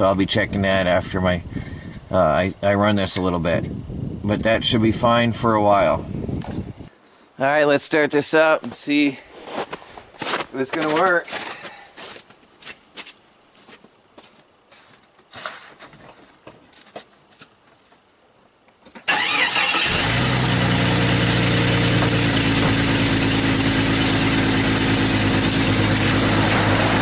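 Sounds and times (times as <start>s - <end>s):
engine cranking and idling: 19.1s - 27.0s.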